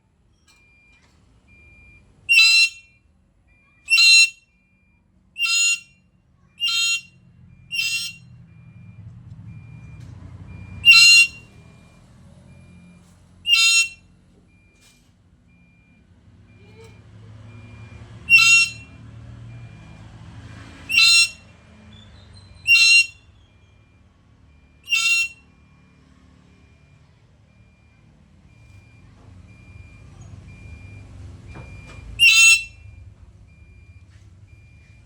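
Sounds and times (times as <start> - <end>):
lory loud calls: 2.3 - 2.8, 5.4 - 5.8, 6.6 - 7.1, 7.7 - 8.2, 10.8 - 11.4, 13.5 - 14.0, 18.3 - 18.9, 20.9 - 21.4, 22.7 - 23.2, 24.9 - 25.4, 32.2 - 32.7.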